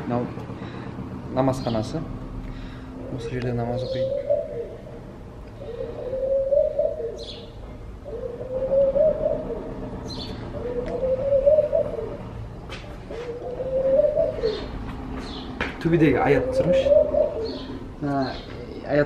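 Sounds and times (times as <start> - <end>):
bird cooing: 3.0 - 12.4, 13.1 - 15.4, 16.1 - 18.9.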